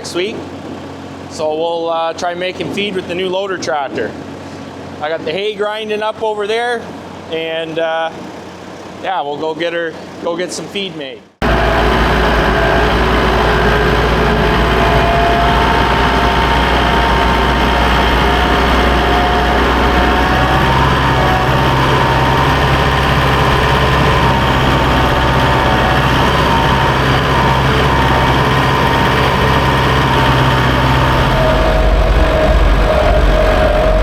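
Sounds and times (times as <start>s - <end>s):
tractor engine running: 11.4s - 34.0s.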